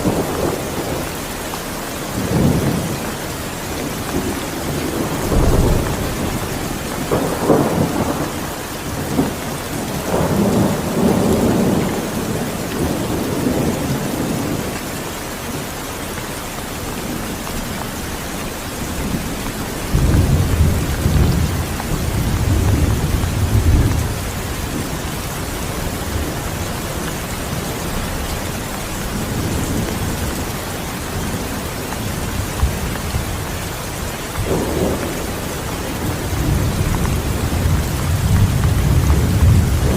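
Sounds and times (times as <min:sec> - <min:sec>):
heavy rain: 0:00.0 - 0:39.9
rolling thunder: 0:04.1 - 0:14.7, 0:18.8 - 0:30.5, 0:31.1 - 0:39.9.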